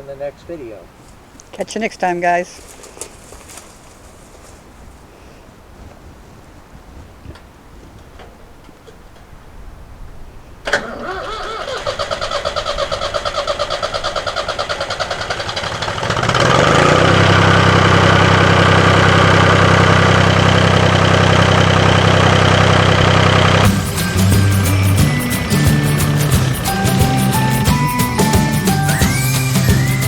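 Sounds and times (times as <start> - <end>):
engine cranking: 10.6 - 30.0
tractor engine running: 10.6 - 30.0
starter motor clicking: 10.7 - 30.0.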